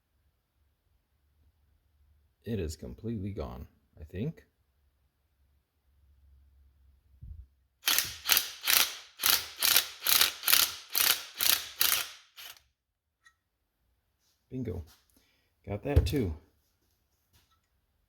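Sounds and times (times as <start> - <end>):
ratchet tool rattling: 7.8 - 12.6.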